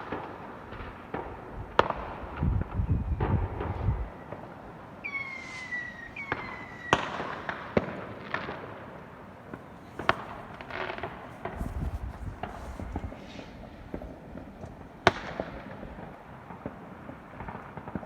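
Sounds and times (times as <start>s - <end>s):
firework bangs: 0.0s - 18.0s
firework crackles: 0.0s - 18.0s
whistling fireworks: 0.0s - 18.0s.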